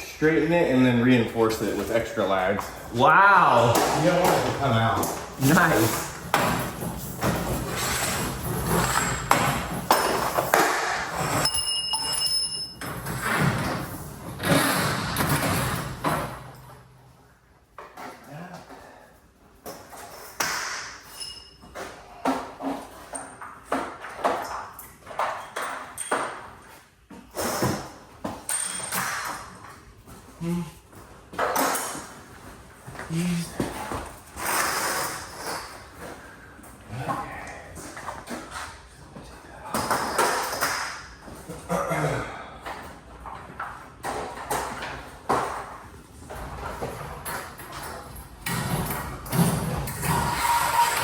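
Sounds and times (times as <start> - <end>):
metal tools clinking and knocking: 11.3 - 13.1
metallic ring: 11.4 - 13.0, 21.1 - 21.7.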